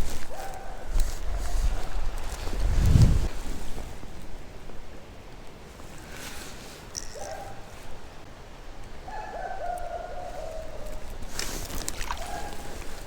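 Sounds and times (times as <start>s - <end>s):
creek water running: 11.0s - 13.0s
water splash: 11.4s - 12.8s.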